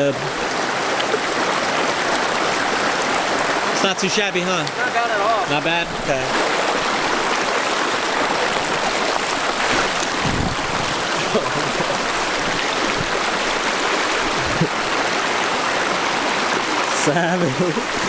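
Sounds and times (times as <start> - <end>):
creek water flowing: 0.0 - 18.0
dull thumps: 8.5 - 13.7.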